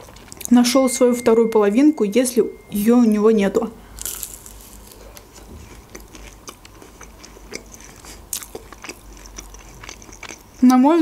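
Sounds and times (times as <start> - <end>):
crackly chewing: 0.0 - 0.5, 4.0 - 11.0
crisp bite into food: 4.0 - 5.2.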